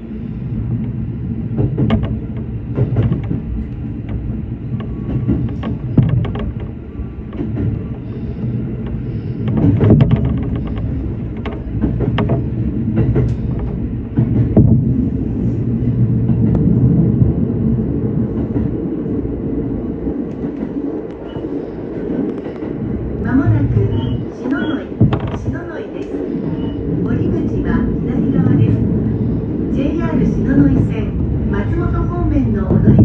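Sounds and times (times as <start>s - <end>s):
train wheels rumbling on rail: 0.0s - 33.0s
wheels clicking over rail joints: 1.5s - 15.1s, 23.7s - 27.2s.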